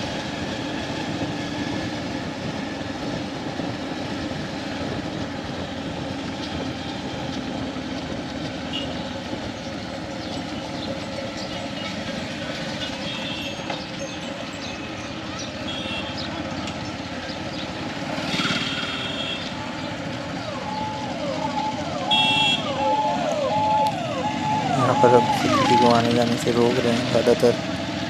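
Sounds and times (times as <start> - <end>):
motorcycle engine rumble: 0.0 - 28.0.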